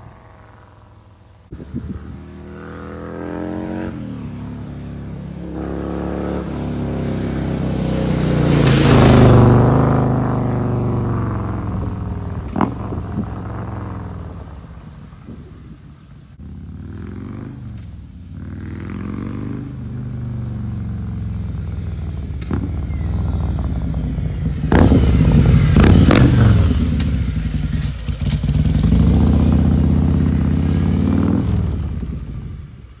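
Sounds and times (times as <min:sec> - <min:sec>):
car engine revving: 0:22.4 - 0:32.0.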